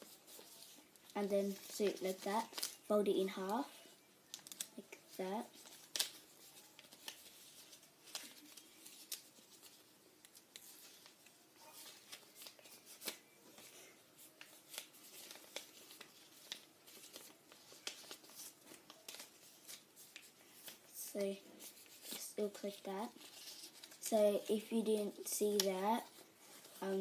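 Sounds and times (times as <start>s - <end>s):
paper rustling and crinkling: 0.0s - 27.0s.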